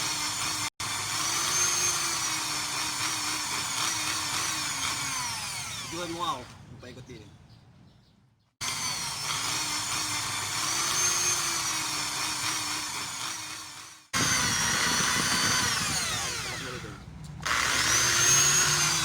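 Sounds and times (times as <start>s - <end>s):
electric drill whining: 0.0s - 6.3s, 8.6s - 19.0s.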